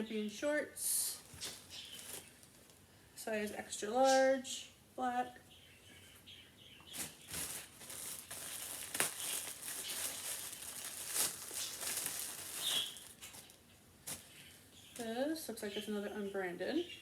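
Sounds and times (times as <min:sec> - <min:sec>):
plastic packaging crinkling: 0:01.2 - 0:02.8, 0:06.9 - 0:14.4.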